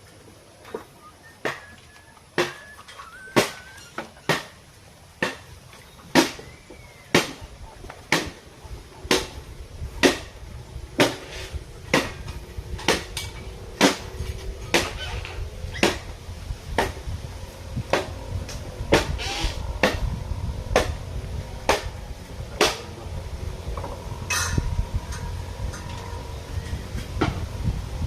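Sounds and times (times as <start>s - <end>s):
sharp knocks: 20.7s - 21.0s.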